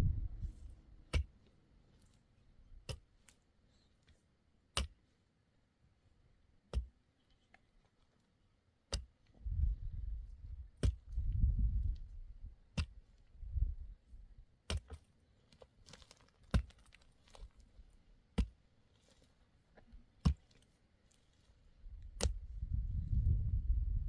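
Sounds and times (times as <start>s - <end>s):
low rumble: 0.0s - 0.8s, 22.4s - 24.0s.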